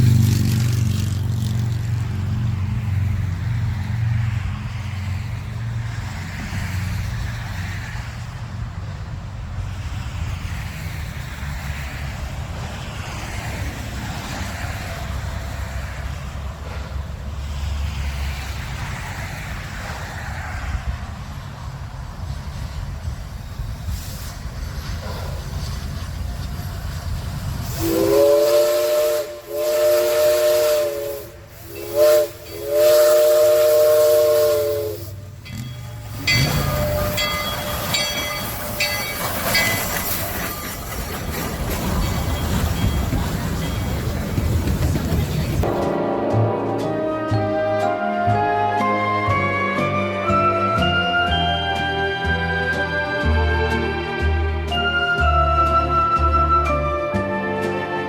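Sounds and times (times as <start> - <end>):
steam locomotive chime whistle: 27.6 - 41.0, 41.6 - 44.8, 45.6 - 58.0.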